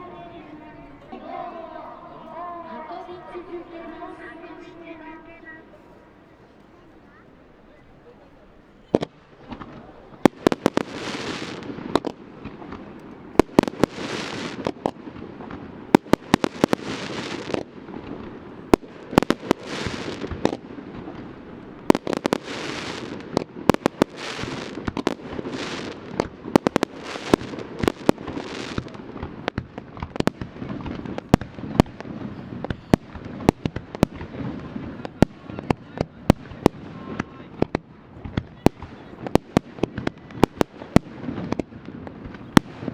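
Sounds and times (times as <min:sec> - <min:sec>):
firework hiss and crackle: 0:08.9 - 0:42.9.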